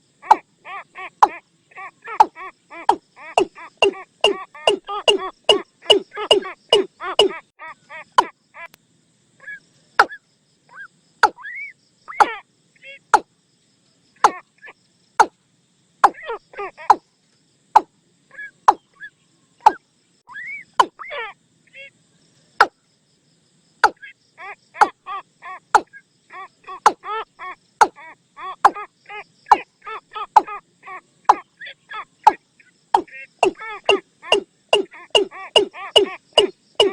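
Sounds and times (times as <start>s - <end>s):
bird call notes: 2.1s - 7.4s, 32.3s - 36.9s.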